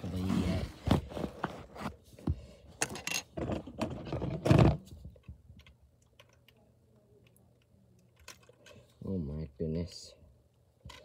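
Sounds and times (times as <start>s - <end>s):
plastic pieces clicking and rattling: 5.2s - 6.6s, 7.2s - 8.7s.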